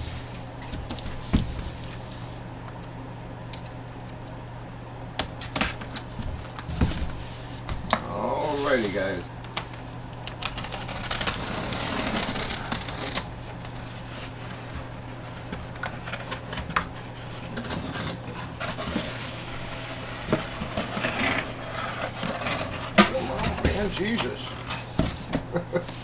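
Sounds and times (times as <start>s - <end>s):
cardboard packaging rustling: 5.3s - 26.0s.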